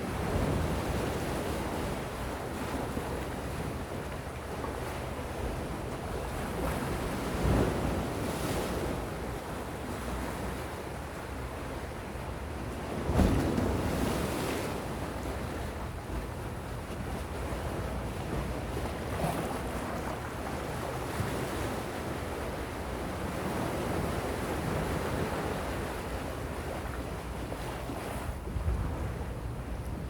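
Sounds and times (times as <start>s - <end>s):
sea waves washing ashore: 16.8s - 29.8s.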